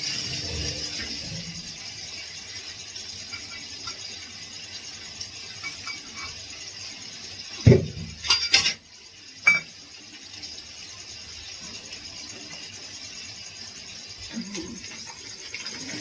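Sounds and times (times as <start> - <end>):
kitchen utensils knocking and clinking: 3.2 - 4.1, 5.5 - 6.4, 7.6 - 9.8.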